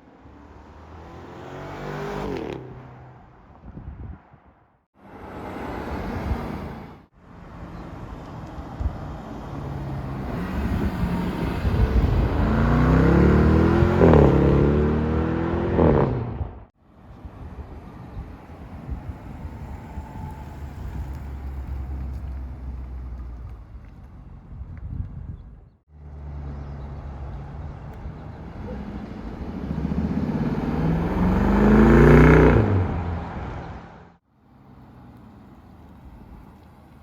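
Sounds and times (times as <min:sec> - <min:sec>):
car accelerating past: 0:00.3 - 0:03.2, 0:09.1 - 0:16.6, 0:28.4 - 0:34.2.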